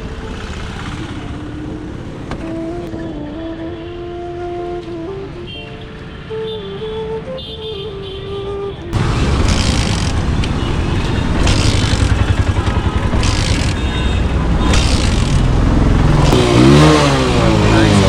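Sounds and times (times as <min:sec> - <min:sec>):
motorcycle engine running roughly: 0:00.0 - 0:01.7, 0:09.0 - 0:18.0
motorcycle kick-start: 0:09.0 - 0:18.0.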